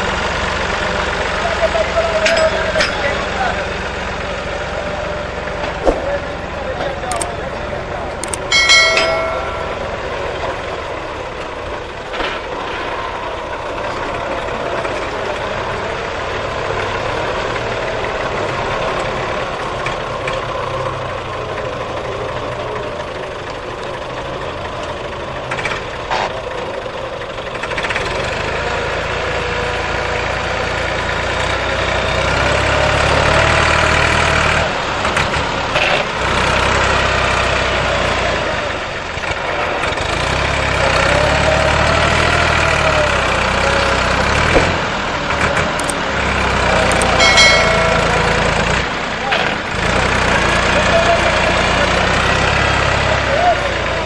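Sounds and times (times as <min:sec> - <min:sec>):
tractor diesel engines running: 0:00.0 - 0:54.0
short sharp knocks: 0:05.8 - 0:06.2.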